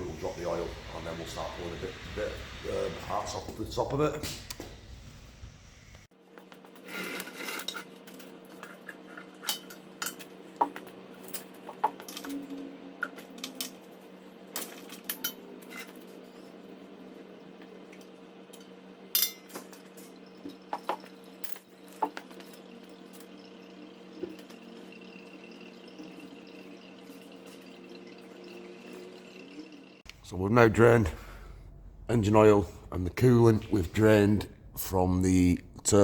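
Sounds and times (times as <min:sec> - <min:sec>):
low workshop hum: 0:00.0 - 0:06.1, 0:06.9 - 0:36.0
metal tools clinking: 0:19.2 - 0:19.5.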